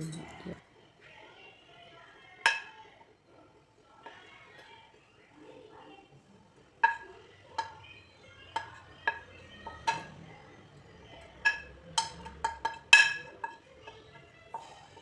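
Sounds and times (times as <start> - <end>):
spoon clinking against bowl: 0.0 - 0.6, 6.8 - 10.2, 11.1 - 15.0.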